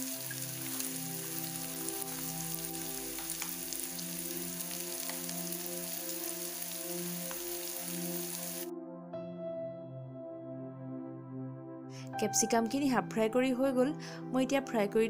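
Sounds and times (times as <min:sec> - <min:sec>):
vegetables sizzling in oil: 0:00.0 - 0:08.7
soft background music: 0:00.0 - 0:15.0.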